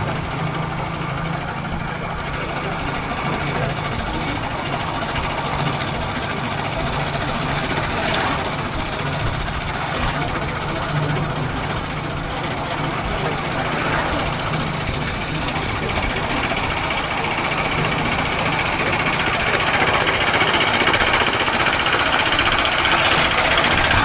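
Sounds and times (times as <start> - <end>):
motorcycle engine running: 0.0 - 24.0
rush of wind noise: 3.9 - 18.0.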